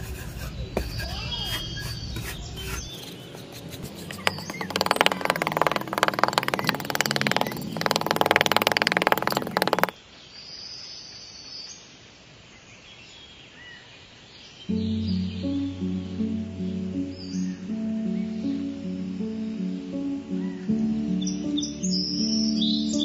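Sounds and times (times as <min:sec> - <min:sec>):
metal trowel scraping sand: 0:00.0 - 0:04.7
music: 0:14.7 - 0:23.0.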